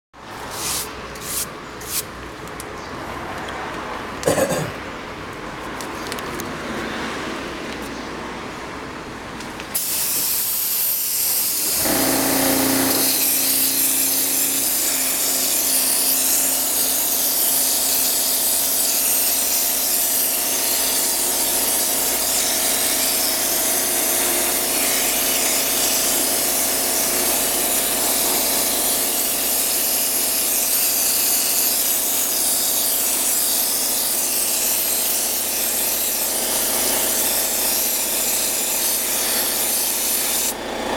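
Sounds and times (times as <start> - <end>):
pressure washer spraying: 9.8 - 40.6
motor hum: 11.7 - 15.5.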